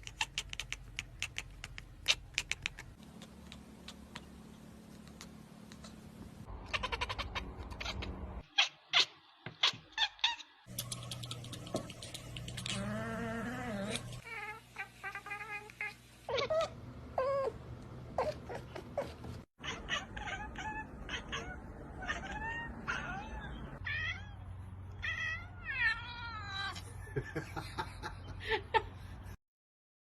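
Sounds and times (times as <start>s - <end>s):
cat meowing: 6.6s - 10.4s, 19.6s - 26.8s.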